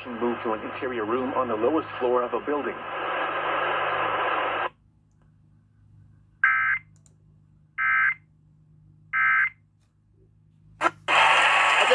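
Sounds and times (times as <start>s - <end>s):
radio broadcast audio: 0.0s - 4.7s, 10.8s - 11.9s.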